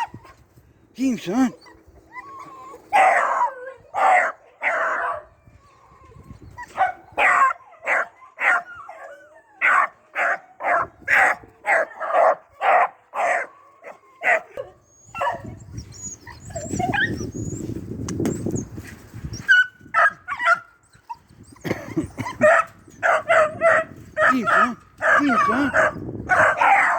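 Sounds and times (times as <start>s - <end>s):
puppy barking: 2.9s - 5.2s, 6.8s - 8.7s, 9.6s - 15.5s, 22.4s - 26.9s.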